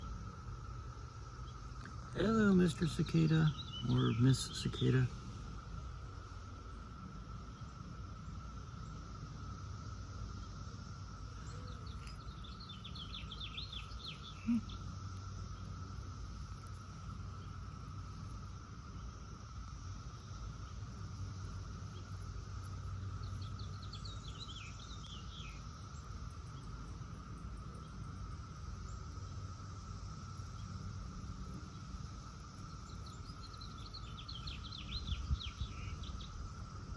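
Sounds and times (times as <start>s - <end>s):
cicadas droning: 0.0s - 36.9s
bird chirping: 2.2s - 5.1s, 11.4s - 15.8s, 22.9s - 26.0s, 32.6s - 36.4s.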